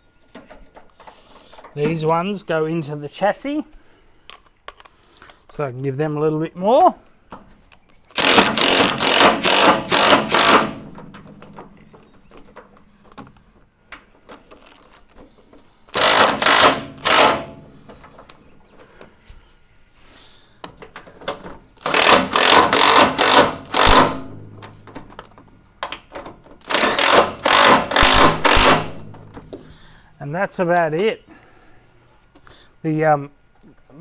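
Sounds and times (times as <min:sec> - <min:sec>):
impact wrench hammering: 0:08.2 - 0:11.9, 0:15.9 - 0:17.6, 0:21.8 - 0:24.6, 0:26.6 - 0:29.6.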